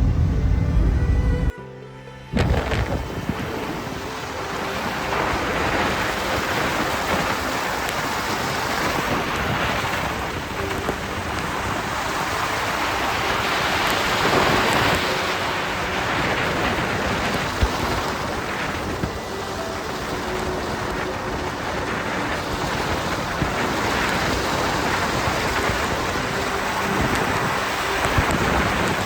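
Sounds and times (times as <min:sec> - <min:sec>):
rain-like hiss: 0:02.4 - 0:29.0.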